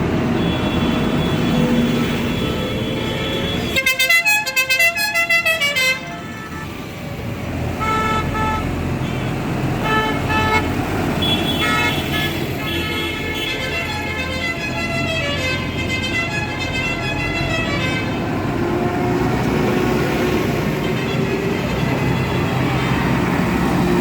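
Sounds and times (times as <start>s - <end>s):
tractor engines running: 0.0s - 24.0s.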